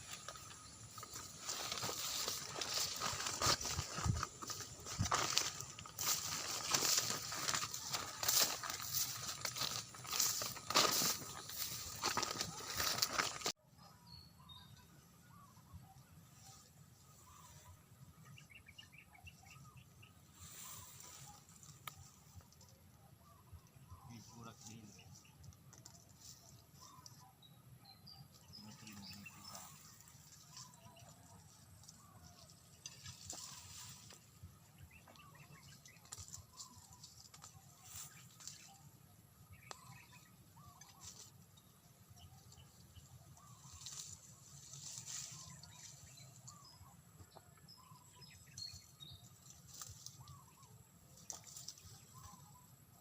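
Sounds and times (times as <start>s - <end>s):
rustling: 0.0s - 13.6s
faint bird chirps: 0.0s - 53.0s.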